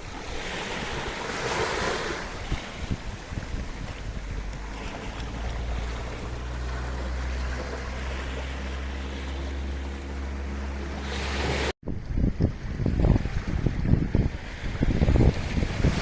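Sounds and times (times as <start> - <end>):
wind noise on microphone: 0.0 - 10.0, 10.9 - 16.0
sea waves washing ashore: 0.0 - 16.0
low engine drone: 3.2 - 11.8.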